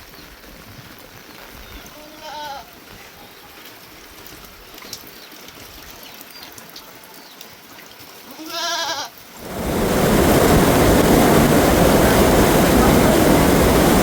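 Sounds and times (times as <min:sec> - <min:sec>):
sheep or goat bleating: 0:01.7 - 0:03.1, 0:08.3 - 0:09.2
loud rushing noise: 0:09.4 - 0:14.0.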